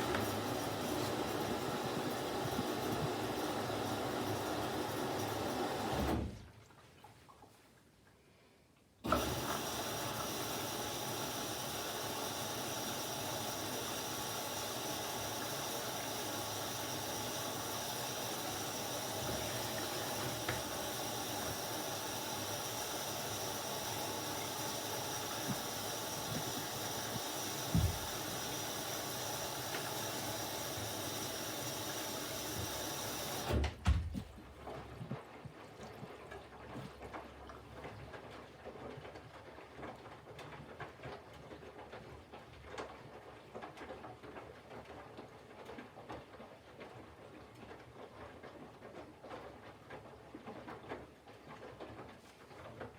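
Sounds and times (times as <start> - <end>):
water rushing into washing machine: 0.0 - 7.0, 9.0 - 35.1.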